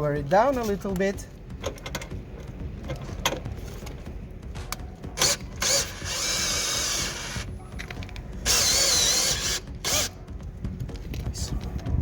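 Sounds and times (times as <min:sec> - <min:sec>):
electric drill motor: 0:05.2 - 0:07.5, 0:08.4 - 0:10.2.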